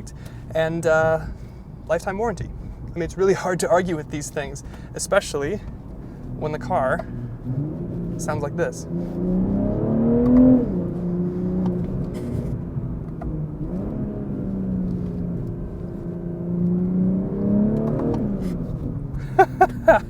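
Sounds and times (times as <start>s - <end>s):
car engine revving: 5.9s - 20.0s.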